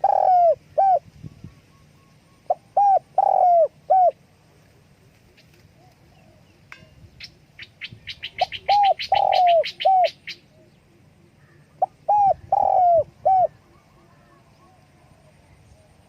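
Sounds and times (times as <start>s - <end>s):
dove cooing: 0.0s - 4.2s, 7.3s - 15.3s.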